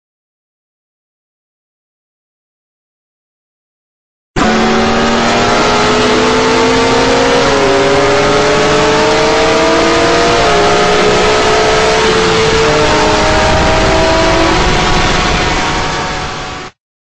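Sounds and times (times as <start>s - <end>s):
engine accelerating hard: 4.4s - 16.8s.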